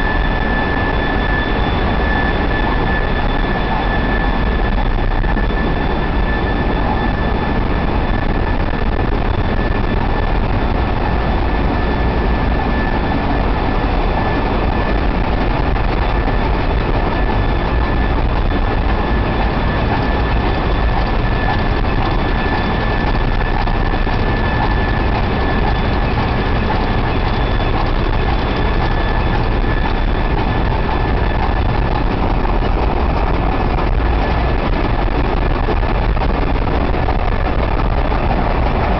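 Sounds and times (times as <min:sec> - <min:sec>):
engine room machinery din: 0:00.0 - 0:38.9
high-pitched machinery whine: 0:00.0 - 0:38.9.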